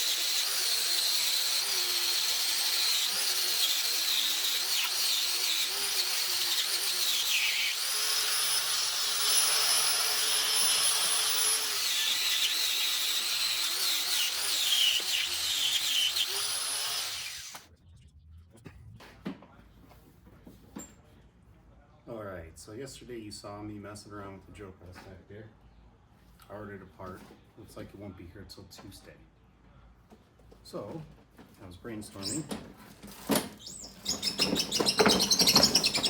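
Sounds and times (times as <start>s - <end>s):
power tool whining: 0.0s - 17.6s, 32.2s - 36.0s.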